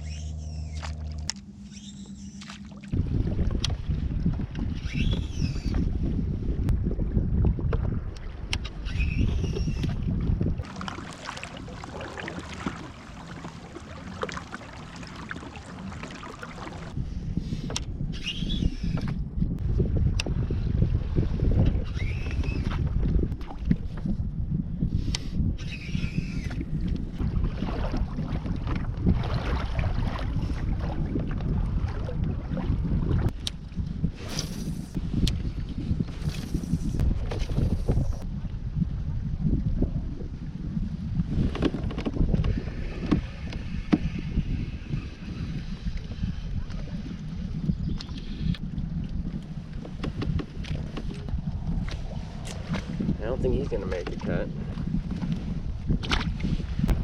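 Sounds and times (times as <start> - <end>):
high sweeping bird calls: 0.0 - 1.0, 1.6 - 2.4
water splashing and lapping: 0.0 - 17.0, 26.4 - 38.3, 41.0 - 57.0
wind rumbling on microphone: 0.0 - 57.0.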